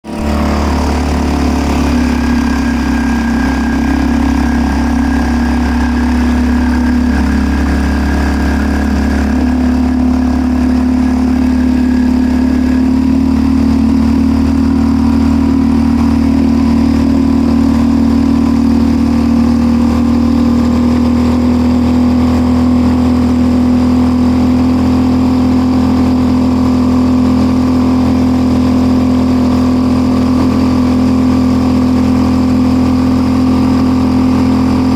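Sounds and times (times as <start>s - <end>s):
outboard motor running: 0.0s - 34.9s.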